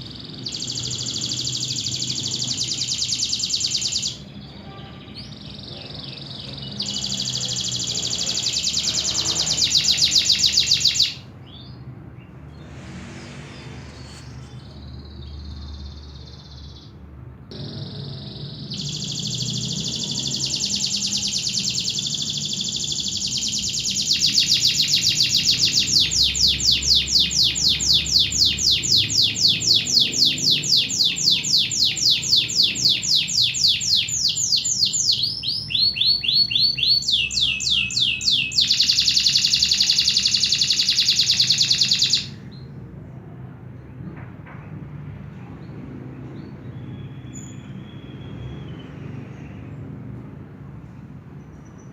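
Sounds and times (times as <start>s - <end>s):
canary singing fast trills: 0.0s - 11.8s, 13.8s - 42.7s.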